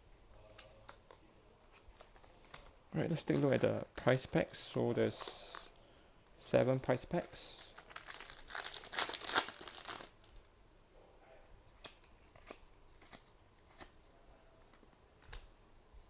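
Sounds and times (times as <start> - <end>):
foil wrappers crinkling and tearing: 1.8 - 10.5
soft clicks of cards handled: 11.4 - 16.0.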